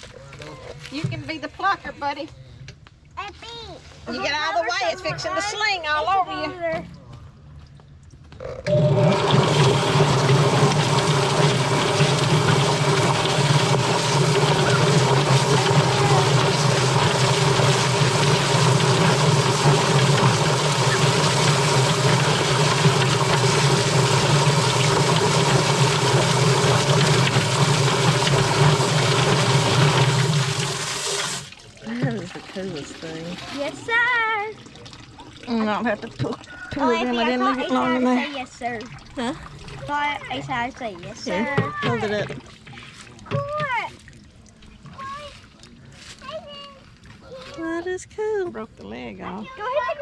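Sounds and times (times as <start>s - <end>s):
motor hum: 8.6s - 36.0s
wet rushing hiss: 9.1s - 31.5s.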